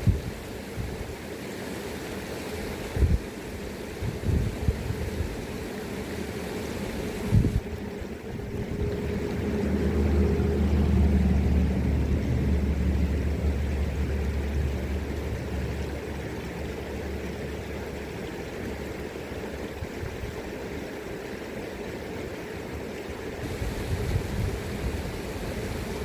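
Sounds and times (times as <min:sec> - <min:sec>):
river rushing: 0:00.0 - 0:26.0
motor engine low hum: 0:03.9 - 0:20.4, 0:23.2 - 0:26.0.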